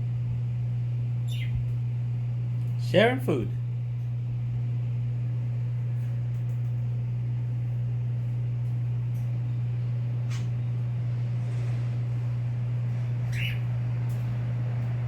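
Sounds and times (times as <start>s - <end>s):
low electrical hum: 0.0s - 15.0s
faint high chirp: 1.2s - 1.6s, 13.3s - 13.7s.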